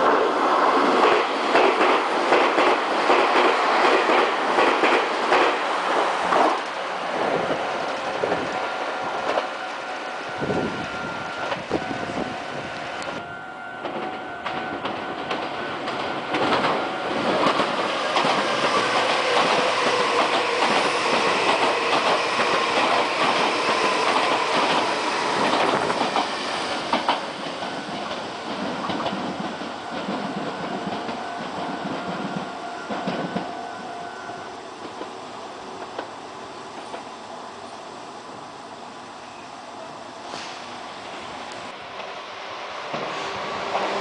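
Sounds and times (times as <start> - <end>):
train wheels clattering over joints: 13.8 - 33.5.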